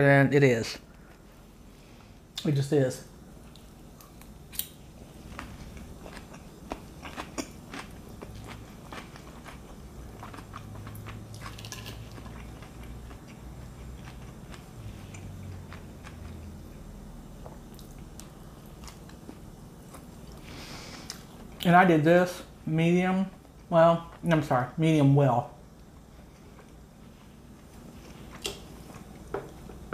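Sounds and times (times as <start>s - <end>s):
wet chewing: 3.5s - 16.6s, 17.7s - 20.4s
crunchy crackles of lettuce: 4.6s - 13.2s.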